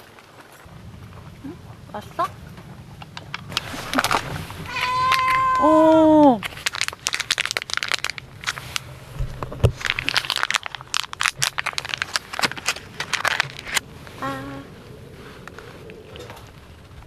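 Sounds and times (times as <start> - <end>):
packaging crinkling: 3.2 - 13.8.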